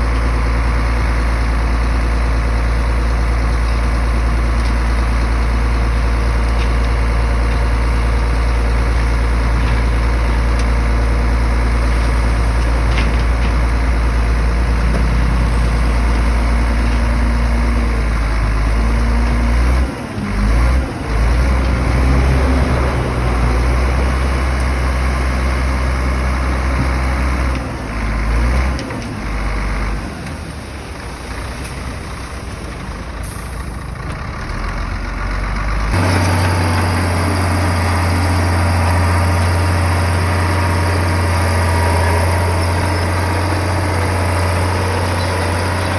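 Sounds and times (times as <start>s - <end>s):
heavy diesel engine humming: 0.0s - 45.9s.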